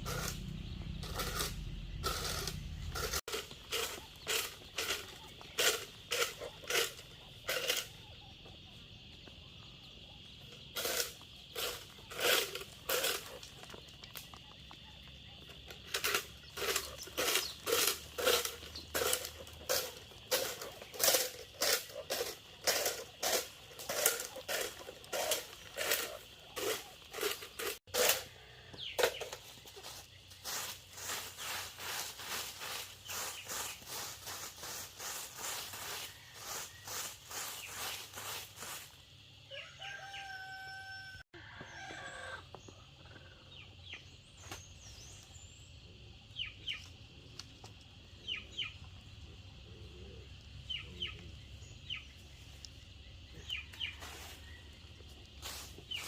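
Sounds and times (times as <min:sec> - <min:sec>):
rhythmic hand tool strokes: 0:00.0 - 0:08.0, 0:10.8 - 0:13.6, 0:15.7 - 0:39.0.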